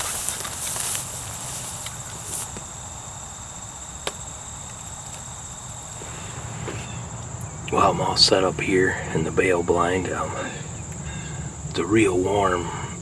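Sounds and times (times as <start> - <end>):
rustle: 0.0 - 7.6
insects chirring: 0.0 - 13.0.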